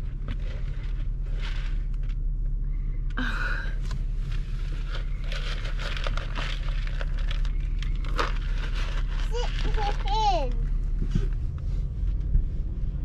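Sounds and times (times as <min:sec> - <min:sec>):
rustling: 0:00.0 - 0:02.4, 0:03.8 - 0:12.8
car engine idling: 0:00.0 - 0:13.0.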